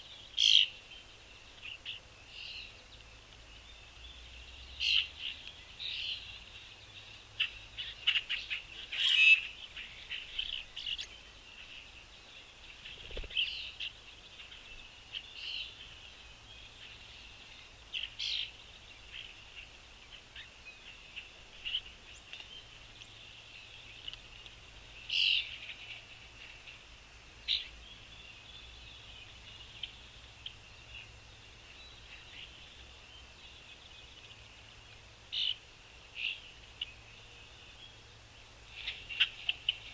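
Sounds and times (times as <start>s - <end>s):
dense birdsong chorus: 0.0s - 39.9s
songbirds chirping: 0.0s - 39.9s.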